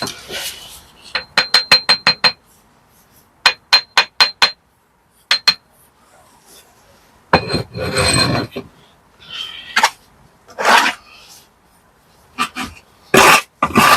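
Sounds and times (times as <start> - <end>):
trowel clinking on bricks: 1.0 - 2.4.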